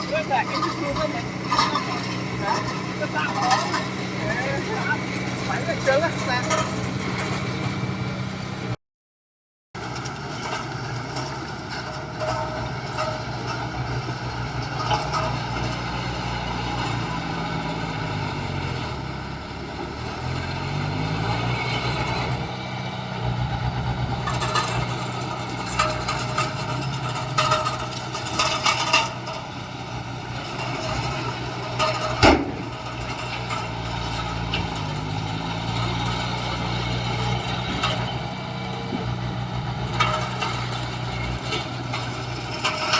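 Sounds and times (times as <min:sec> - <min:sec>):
metal clanks: 0:00.0 - 0:07.9, 0:09.8 - 0:17.8, 0:23.8 - 0:42.9
heavy diesel engine running: 0:00.0 - 0:08.8, 0:09.8 - 0:42.9.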